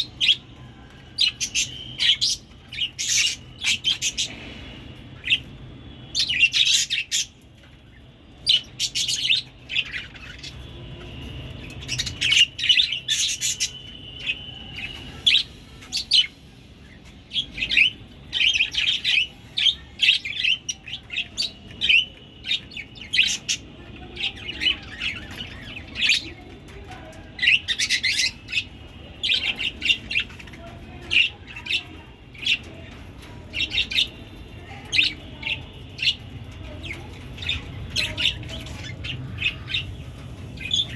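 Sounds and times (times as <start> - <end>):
budgerigars chirping: 1.2 - 4.4.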